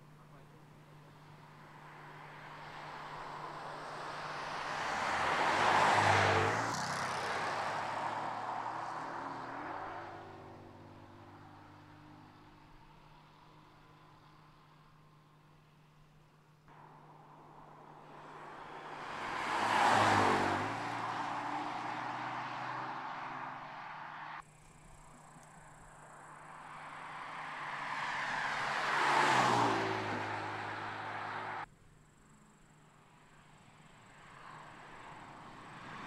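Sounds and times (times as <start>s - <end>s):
car passing by: 1.6s - 12.3s, 16.7s - 24.4s, 26.3s - 31.7s, 33.8s - 36.0s.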